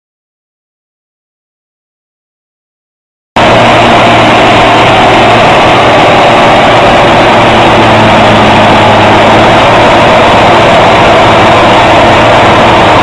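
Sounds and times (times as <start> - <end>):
heavy engine running: 3.4 - 13.0.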